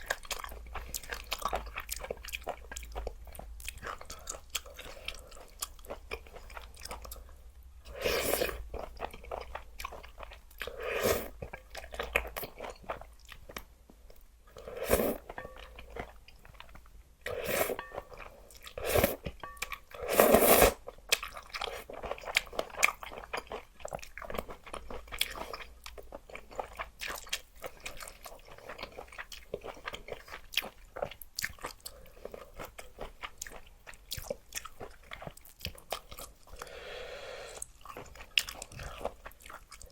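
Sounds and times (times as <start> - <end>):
open-mouthed chewing: 0.0 - 39.9
noodle slurping: 14.6 - 15.3, 18.8 - 19.2, 20.0 - 20.8.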